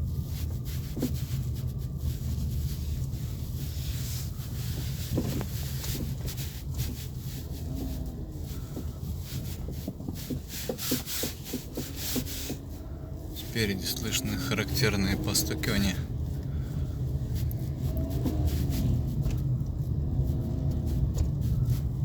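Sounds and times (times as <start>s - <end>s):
low road rumble: 0.0s - 22.0s
suspension knocks: 4.5s - 22.0s.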